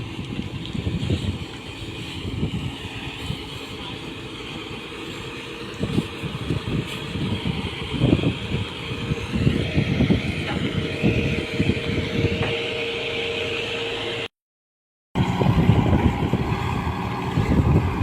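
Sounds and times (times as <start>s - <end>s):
wind gusts on microphone: 0.0s - 4.0s, 5.6s - 12.8s, 15.2s - 18.0s
engine humming: 0.0s - 14.3s, 15.2s - 18.0s.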